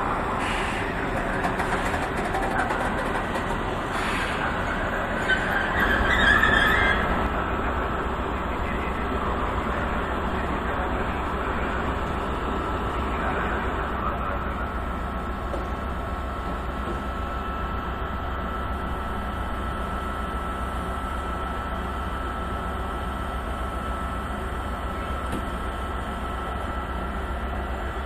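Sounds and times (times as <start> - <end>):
electric trains humming: 0.0 - 28.0
thin steady whine: 7.1 - 28.0.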